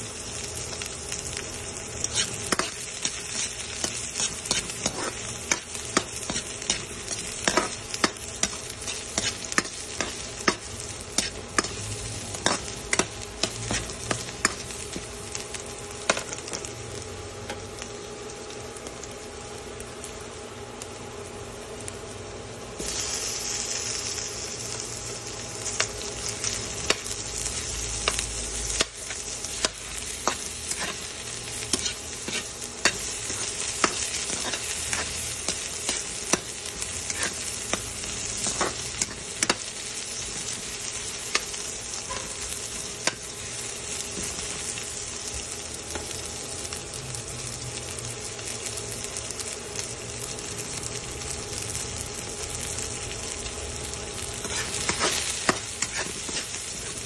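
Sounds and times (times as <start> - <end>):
onion sizzling in hot oil: 0.0 - 57.0
utensil clicking and scraping pan: 54.4 - 57.0.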